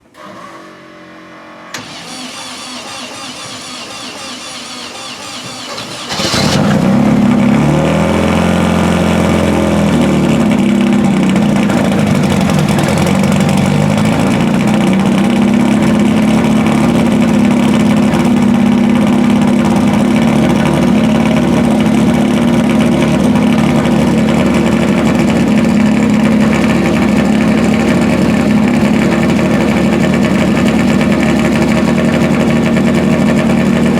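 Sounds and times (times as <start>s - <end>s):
car engine revving and idling: 1.4s - 33.9s
starter motor cranking: 1.8s - 6.8s.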